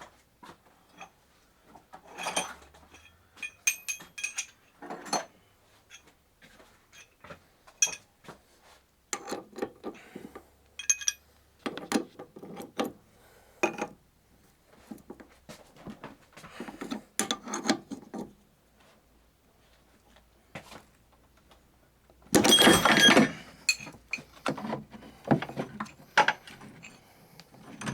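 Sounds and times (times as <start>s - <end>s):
metal hand tools clinking: 2.3s - 4.6s, 10.8s - 11.3s, 22.4s - 24.4s.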